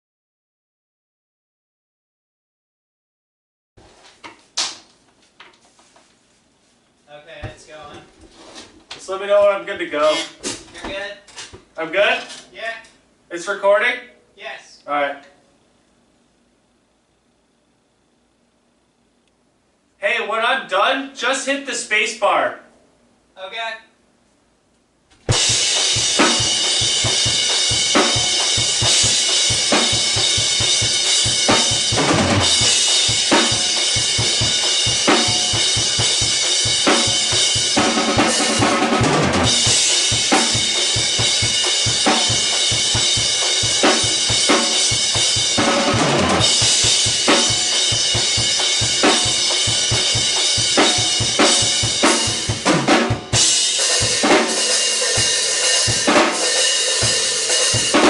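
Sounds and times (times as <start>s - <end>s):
rock drum kit playing: 25.2s - 58.0s.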